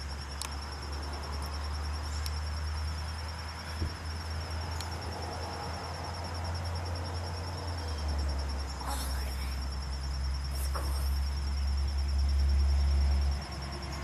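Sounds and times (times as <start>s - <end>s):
high pulsing insect trill: 0.0s - 14.0s.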